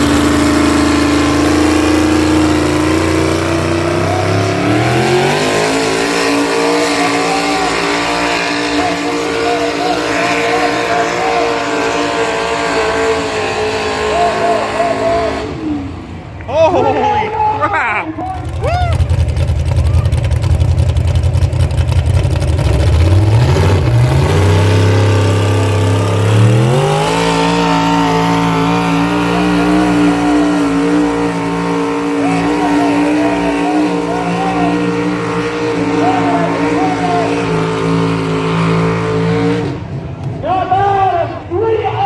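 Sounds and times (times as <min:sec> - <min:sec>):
tractor engine under load: 0:00.0 - 0:11.2, 0:18.2 - 0:39.4.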